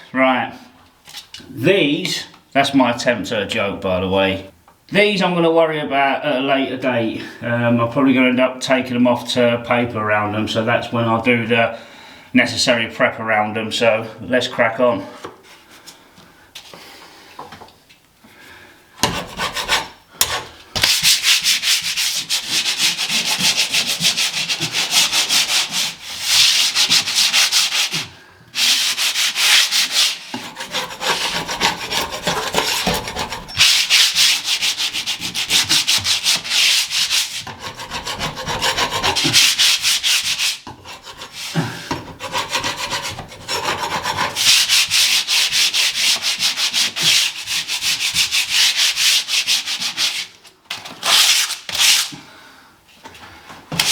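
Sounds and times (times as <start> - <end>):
sandpaper scratching ceiling: 19.0 - 50.4, 51.0 - 52.2.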